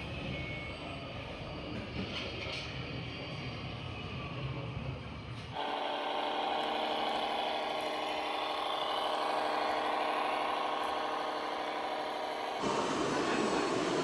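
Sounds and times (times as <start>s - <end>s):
model engine idling: 5.6s - 14.0s.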